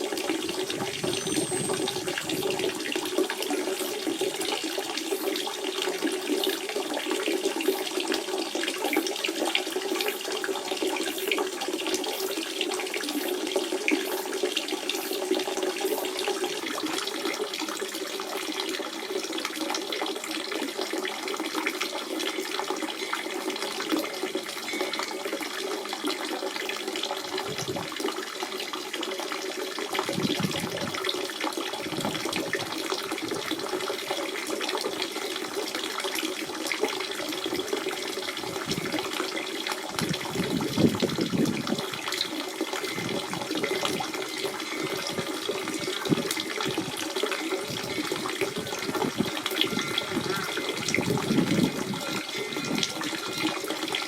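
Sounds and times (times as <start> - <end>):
water splashing over stones: 29.9 - 54.0.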